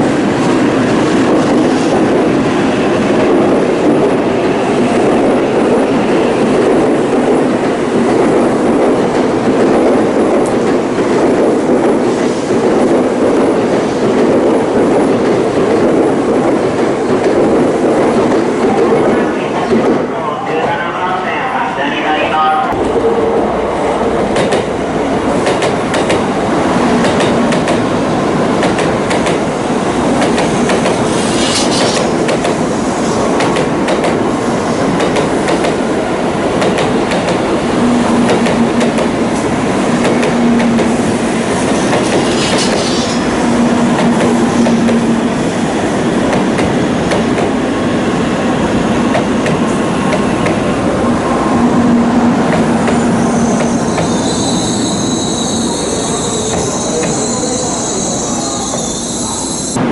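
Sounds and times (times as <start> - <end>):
train rumbling with wheel clicks: 0.0 - 20.0, 24.2 - 59.9.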